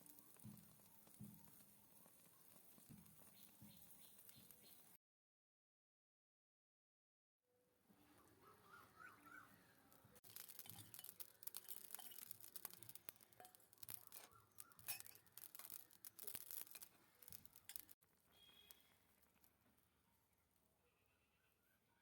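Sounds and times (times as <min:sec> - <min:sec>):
utensils scraping miniature cookware: 0:10.2 - 0:18.0.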